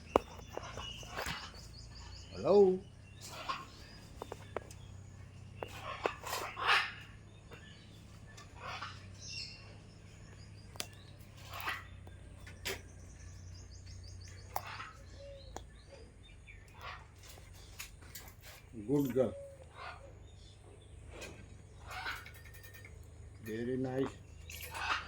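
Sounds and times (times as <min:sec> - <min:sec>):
parrot calls and squawks: 0:00.1 - 0:04.9, 0:05.6 - 0:09.9, 0:11.4 - 0:12.1, 0:14.3 - 0:17.7, 0:18.4 - 0:20.5, 0:21.8 - 0:23.0, 0:23.8 - 0:25.0.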